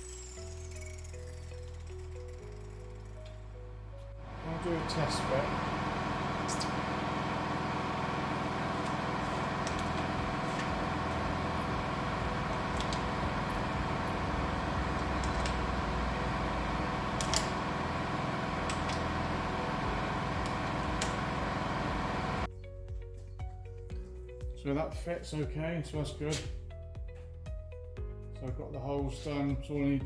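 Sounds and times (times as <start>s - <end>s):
steady mechanical hum: 4.2s - 22.5s.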